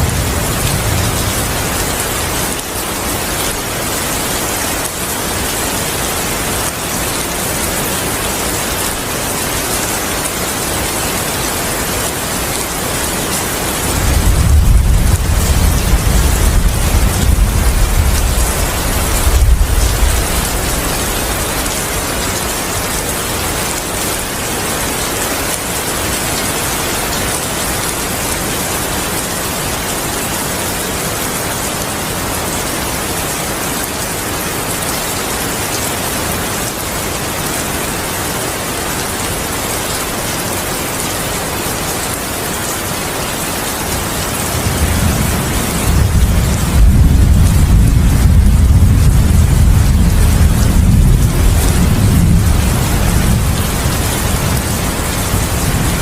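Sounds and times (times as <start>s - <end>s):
low thunder rumble: 0.0s - 2.5s, 13.9s - 21.6s, 44.6s - 55.9s
heavy rainfall: 0.0s - 56.0s.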